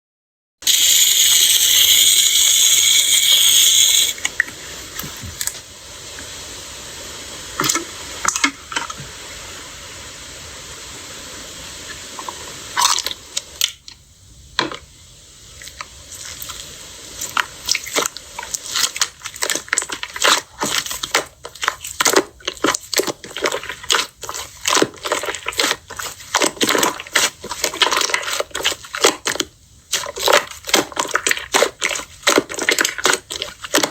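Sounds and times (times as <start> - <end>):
loud hiss: 0.6 - 19.2
slime squishing by hand: 15.5 - 33.9.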